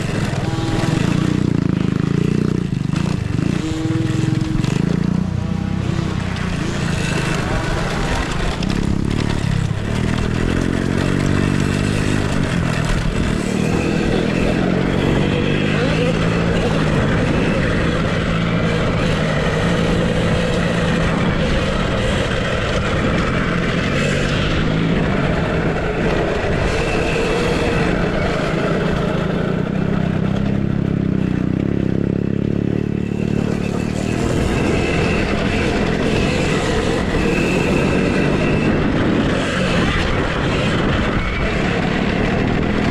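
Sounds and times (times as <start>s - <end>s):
motorcycles revving: 0.0s - 42.9s
steady rushing noise: 0.0s - 42.9s.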